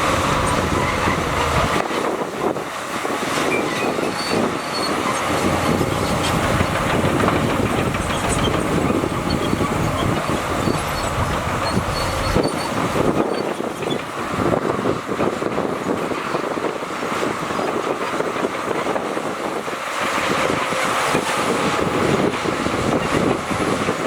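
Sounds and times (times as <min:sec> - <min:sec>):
heavy diesel machinery running: 0:00.0 - 0:24.0
deep low rumble: 0:05.3 - 0:13.2.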